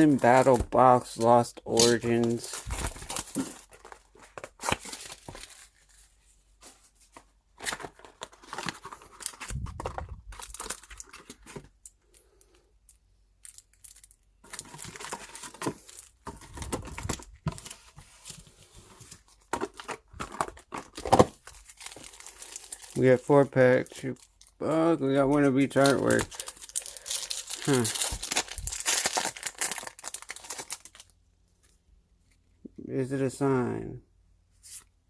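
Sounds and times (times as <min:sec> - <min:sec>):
packaging tearing and crinkling: 0:00.0 - 0:05.8, 0:07.6 - 0:11.6, 0:13.4 - 0:17.7, 0:19.6 - 0:23.1, 0:25.4 - 0:31.1.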